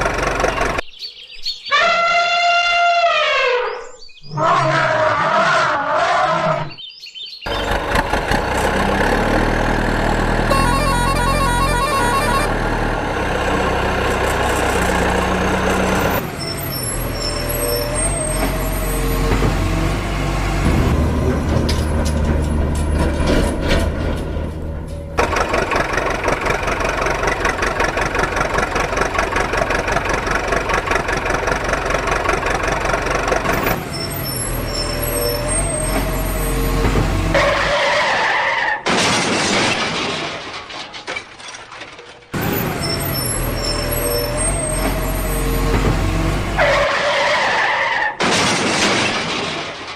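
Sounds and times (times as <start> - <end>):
cartoon vehicle sound effects: 7.5 - 20.0, 24.7 - 38.9, 42.4 - 48.5.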